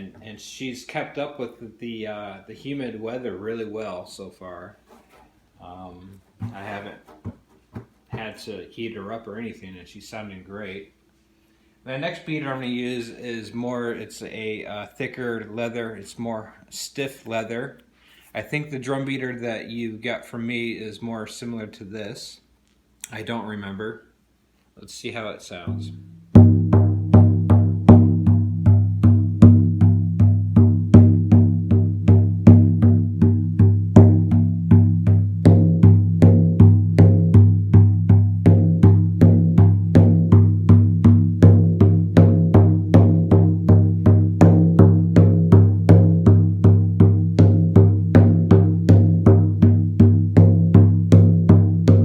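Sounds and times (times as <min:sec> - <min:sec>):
frame drum struck with beater: 0:25.7 - 0:52.0.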